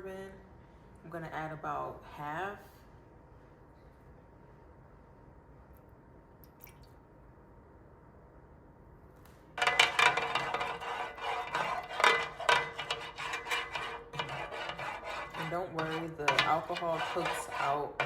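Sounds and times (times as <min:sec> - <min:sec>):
utensil clinking against pot: 0:09.6 - 0:18.0
utensil stirring sauce in pot: 0:09.6 - 0:18.0.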